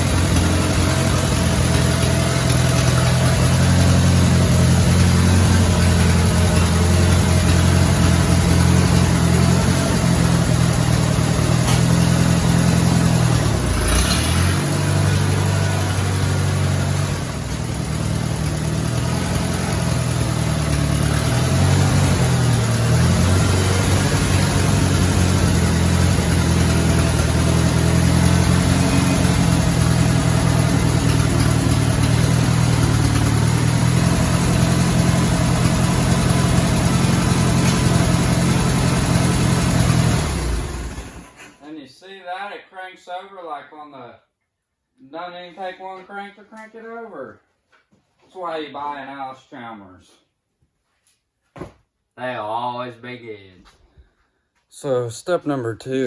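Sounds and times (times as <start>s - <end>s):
tractor engine running: 0.0s - 41.4s.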